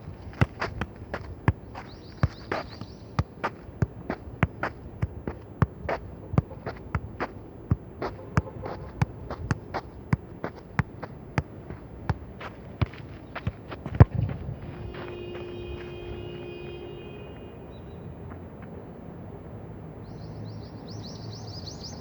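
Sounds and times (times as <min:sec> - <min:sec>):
football being kicked: 0:00.0 - 0:16.3.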